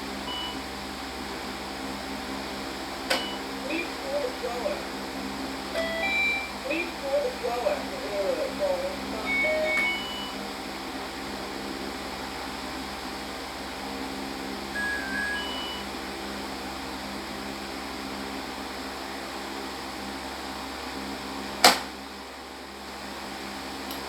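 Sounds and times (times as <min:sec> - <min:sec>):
short electronic beep: 0:05.8 - 0:06.7, 0:09.2 - 0:10.4, 0:14.8 - 0:15.9.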